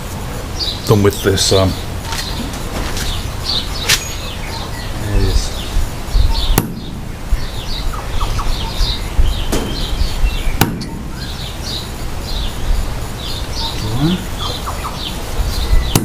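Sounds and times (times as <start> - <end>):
birds chirping: 0.0 - 16.0
sharp knocks: 6.5 - 7.1, 9.2 - 11.4.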